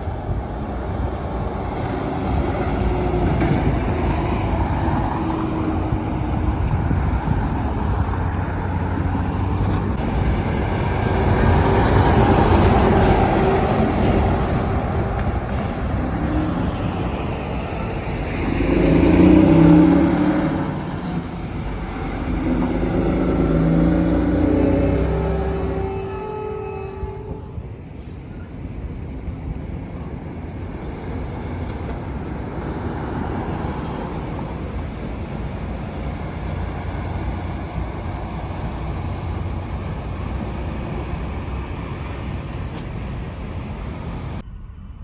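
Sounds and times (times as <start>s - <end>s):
highway traffic passing: 0.0s - 45.0s
vehicle engine passing close: 1.4s - 26.1s.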